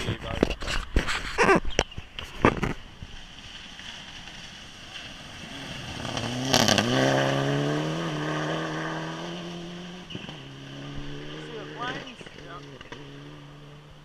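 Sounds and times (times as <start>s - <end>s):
rally car engine approaching: 3.2s - 14.0s.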